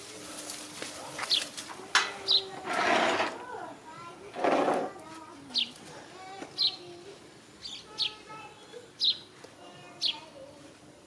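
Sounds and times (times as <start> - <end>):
bird chirping: 7.6 - 10.3.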